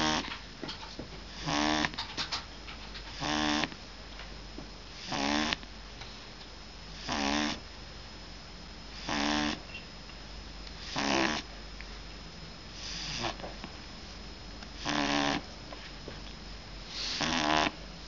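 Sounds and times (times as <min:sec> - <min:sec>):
dog snoring: 0:00.0 - 0:00.4, 0:01.3 - 0:02.4, 0:03.0 - 0:03.8, 0:04.9 - 0:05.6, 0:06.9 - 0:07.6, 0:08.9 - 0:09.7, 0:10.8 - 0:11.5, 0:12.8 - 0:13.5, 0:14.8 - 0:15.5, 0:16.9 - 0:17.8.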